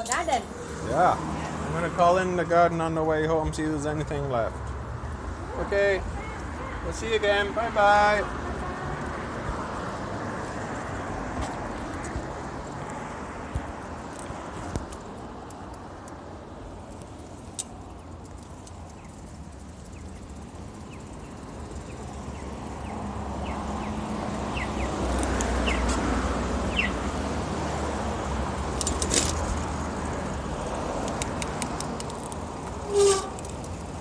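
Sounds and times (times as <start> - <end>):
street traffic: 0.0 - 34.0
vehicle passing close: 19.1 - 34.0.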